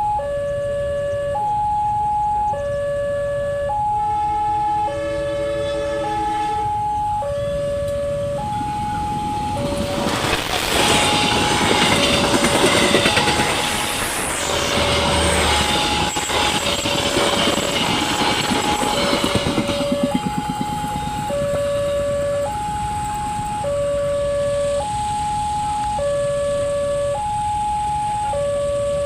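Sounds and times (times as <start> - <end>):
level crossing two-tone alarm: 0.0 - 29.0
train wheels clattering on rails: 8.8 - 23.6.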